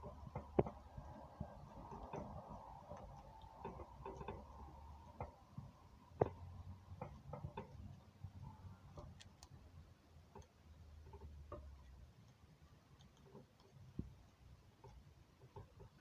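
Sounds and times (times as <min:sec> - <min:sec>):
faint sharp clicks and taps: 0:00.0 - 0:16.0.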